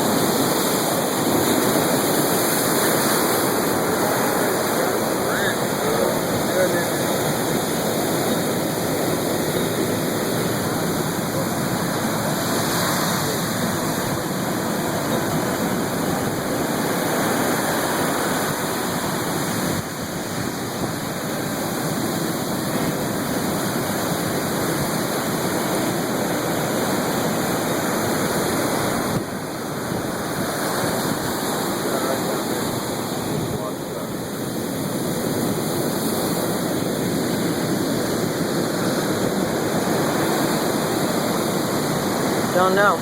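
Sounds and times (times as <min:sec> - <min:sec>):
ocean surf rushing: 0:00.0 - 0:43.0.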